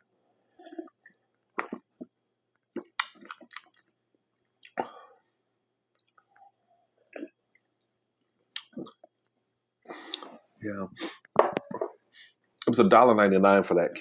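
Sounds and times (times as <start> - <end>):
chewing and mouth sounds: 0.6 - 4.8, 5.9 - 6.5, 7.1 - 9.4, 10.0 - 10.4.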